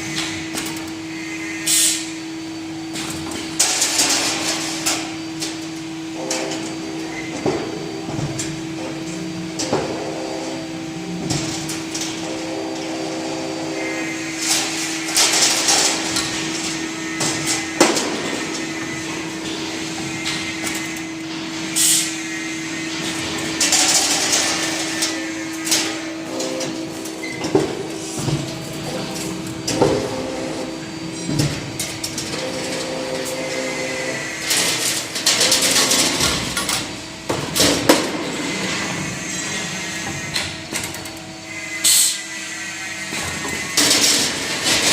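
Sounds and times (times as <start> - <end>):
machine humming: 0.0 - 44.9
machine clanks: 14.4 - 22.1, 22.8 - 41.2.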